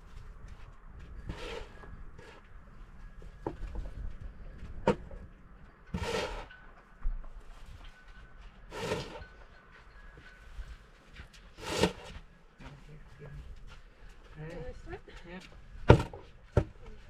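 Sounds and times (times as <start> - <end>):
snow shovel scraping through snow: 1.3 - 2.4, 5.9 - 6.5, 8.7 - 9.2, 11.6 - 12.2.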